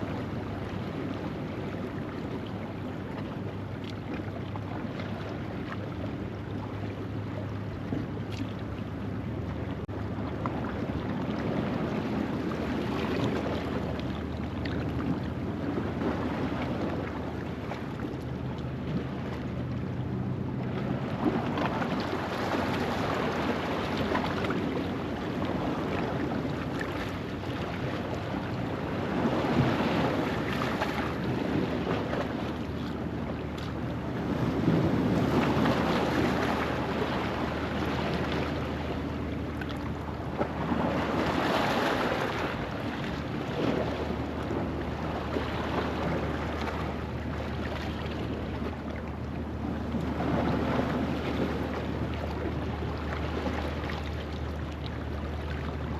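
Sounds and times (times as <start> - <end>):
waves washing over rocks: 27.6 - 47.8.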